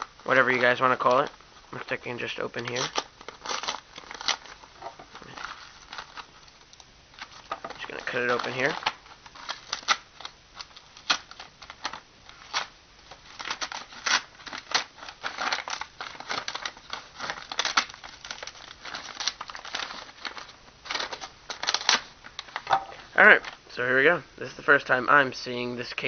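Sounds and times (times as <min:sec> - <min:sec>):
packaging rustling and crinkling: 0:00.0 - 0:23.7
scissors snipping envelope: 0:07.9 - 0:22.7.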